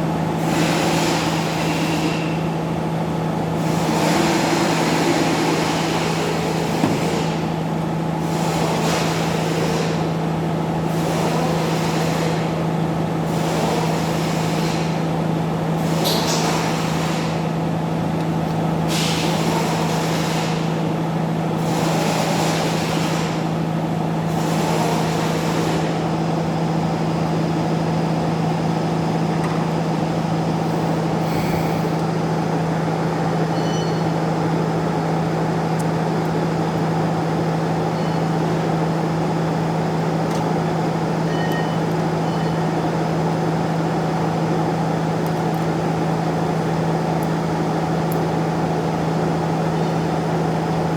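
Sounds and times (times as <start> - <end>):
machine hum: 25.0 - 47.0.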